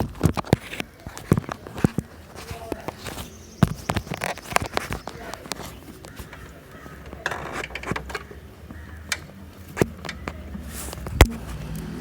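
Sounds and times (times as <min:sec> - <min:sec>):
tools clicking and knocking: 0:00.0 - 0:11.9.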